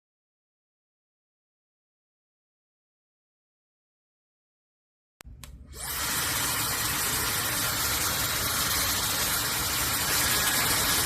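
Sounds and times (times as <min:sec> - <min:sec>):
hair dryer airflow and motor hiss: 0:05.4 - 0:11.0.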